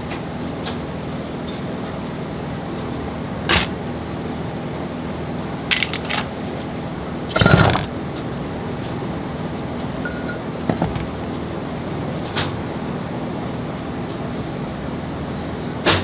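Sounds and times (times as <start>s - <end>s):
metal tools clinking on workbench: 5.7s - 6.3s.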